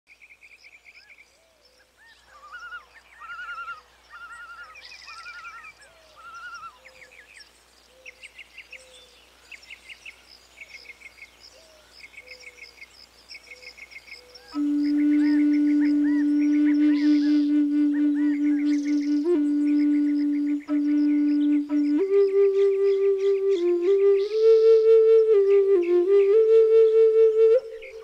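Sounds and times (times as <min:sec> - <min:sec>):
wild birds chirping and trilling: 0:00.1 - 0:21.5.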